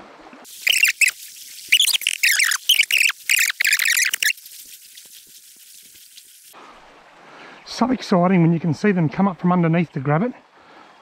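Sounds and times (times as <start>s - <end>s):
bird singing warbling phrases: 0.5s - 4.5s
stream hissing: 0.5s - 6.7s.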